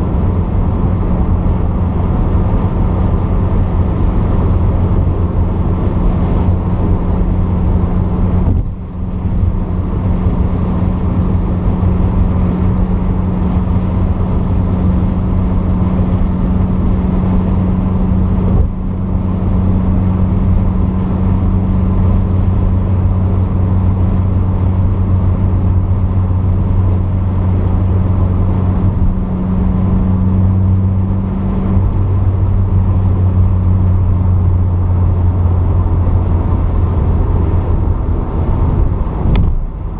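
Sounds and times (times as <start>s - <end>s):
car engine pulling steadily: 0.0s - 39.9s.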